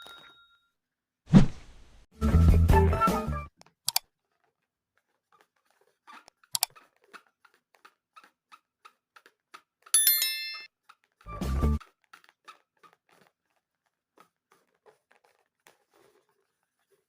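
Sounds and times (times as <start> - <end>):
bell-like ding: 0.0 - 0.6, 10.0 - 10.7.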